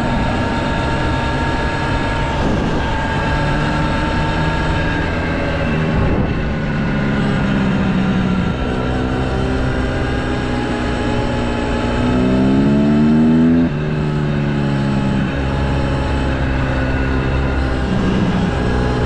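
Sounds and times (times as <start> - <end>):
dirt bike engine: 0.0 - 19.0.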